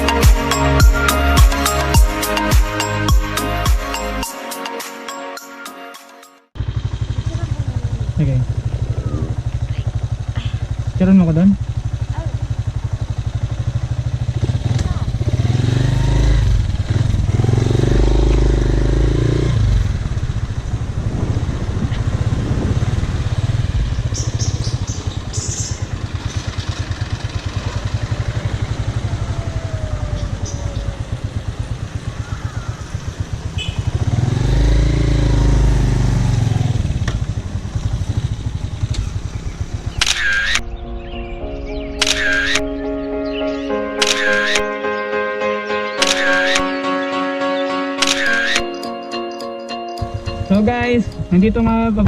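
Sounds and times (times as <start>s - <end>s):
motorcycle engine running: 6.6s - 44.8s, 50.0s - 52.0s
road and wind noise: 6.6s - 46.8s, 48.0s - 52.0s.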